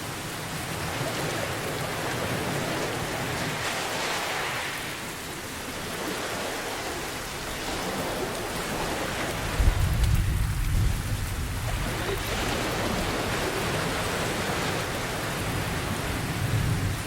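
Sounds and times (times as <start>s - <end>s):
heavy rain falling: 0.0s - 17.0s
low rumble of thunder: 9.4s - 13.9s, 15.0s - 17.0s.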